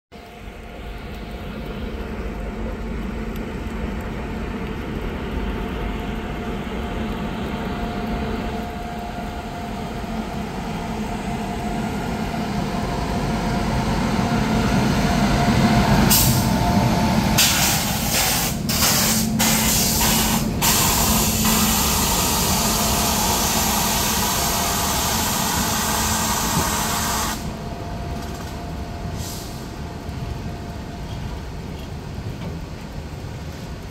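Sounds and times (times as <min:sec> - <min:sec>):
heavy rain: 0:00.2 - 0:33.9
freight train passing: 0:05.9 - 0:33.9
loud hiss: 0:17.4 - 0:27.6.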